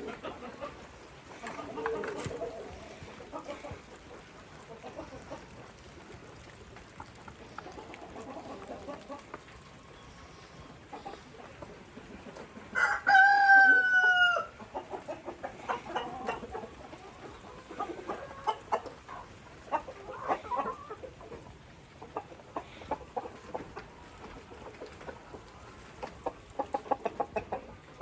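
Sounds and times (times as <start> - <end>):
chickens clucking: 0.0 - 28.0
rooster crowing: 12.8 - 14.6.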